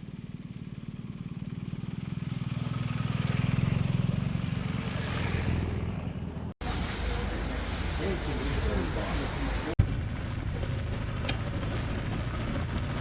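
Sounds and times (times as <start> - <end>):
motorcycle engine running: 0.0 - 6.5, 9.8 - 13.0.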